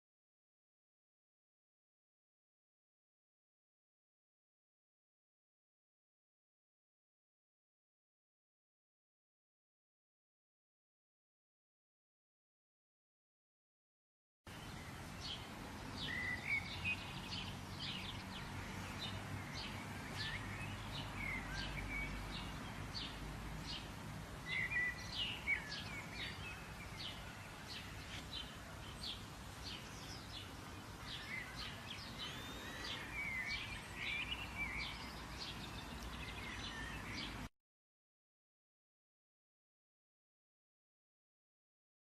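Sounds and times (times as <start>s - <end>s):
small birds chirping: 14.5s - 37.5s.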